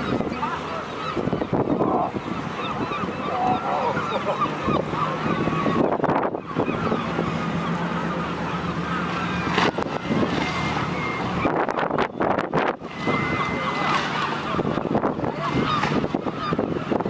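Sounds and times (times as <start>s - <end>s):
boat engine humming: 0.0s - 17.0s
wind noise on microphone: 1.1s - 4.0s, 4.6s - 7.6s, 9.4s - 17.0s.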